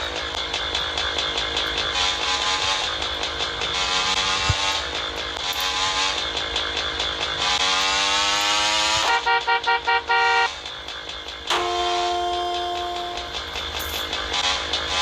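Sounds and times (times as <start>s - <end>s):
wind and road noise: 0.0s - 11.5s
motorcycle engine accelerating: 0.0s - 15.0s
vehicle horn honking: 9.0s - 10.6s, 11.5s - 13.4s.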